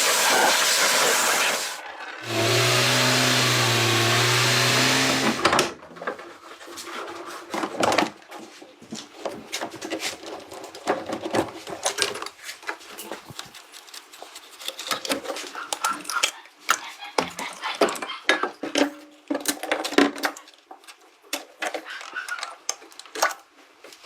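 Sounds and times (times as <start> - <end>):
loud steady hiss: 0.0 - 5.6.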